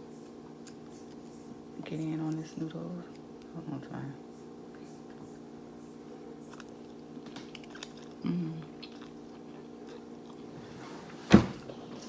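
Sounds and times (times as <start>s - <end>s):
chewing noodles: 6.4s - 10.6s.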